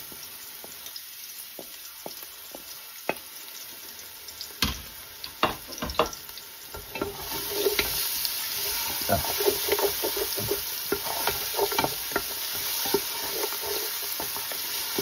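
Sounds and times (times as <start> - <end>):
spices sizzling in hot oil: 0.0 - 15.0
wooden spoon scraping a pot: 6.8 - 15.0.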